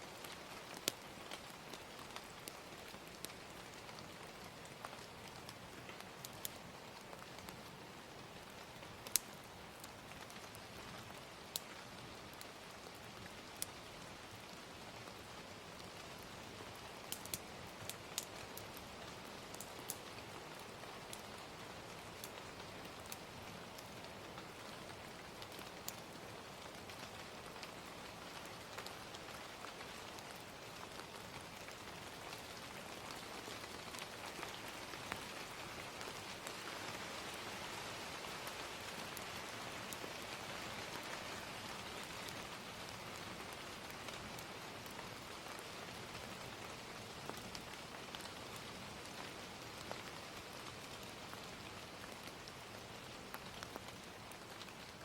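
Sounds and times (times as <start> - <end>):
gentle rain: 0.0 - 55.0
crackling fire pops: 0.2 - 36.6.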